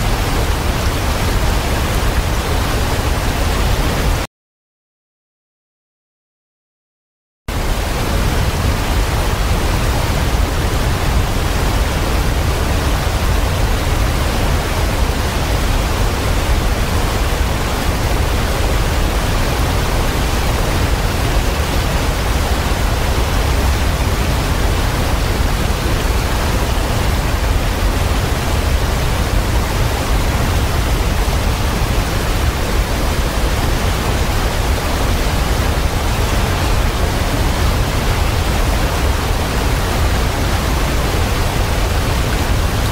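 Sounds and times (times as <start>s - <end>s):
waterfall rushing: 0.0s - 4.2s, 7.5s - 42.9s.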